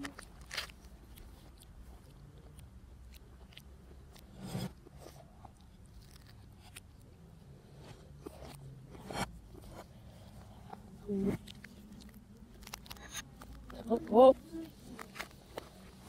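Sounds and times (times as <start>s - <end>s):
chewing crisp pastry: 0.0s - 16.0s
loud crunches: 0.1s - 1.6s.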